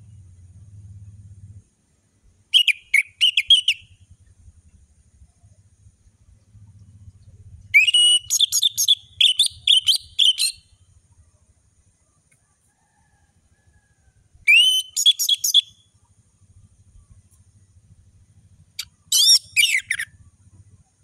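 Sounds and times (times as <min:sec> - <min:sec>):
thrush singing whistled notes: 0:02.5 - 0:04.3, 0:06.1 - 0:11.0, 0:14.4 - 0:21.0.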